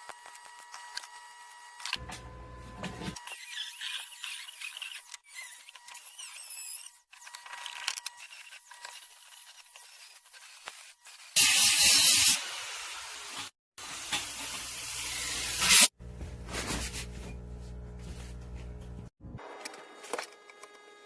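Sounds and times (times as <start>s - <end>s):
welding arc hissing and crackling: 11.4s - 16.0s
low machine hum: 16.0s - 19.4s.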